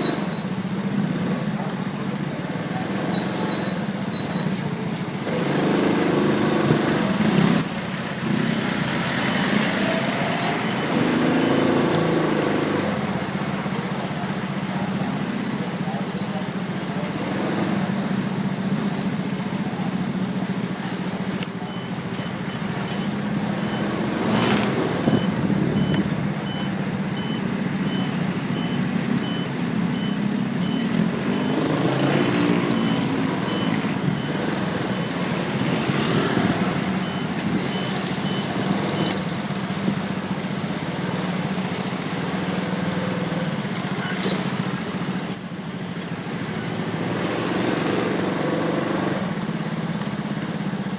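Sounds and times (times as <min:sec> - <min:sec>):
wind and road noise: 0:00.0 - 0:14.8, 0:16.9 - 0:43.8
vehicles passing: 0:00.0 - 0:50.9
faint high beep: 0:21.6 - 0:24.2, 0:25.1 - 0:35.1, 0:37.0 - 0:39.2
high steady squeal: 0:43.8 - 0:47.6.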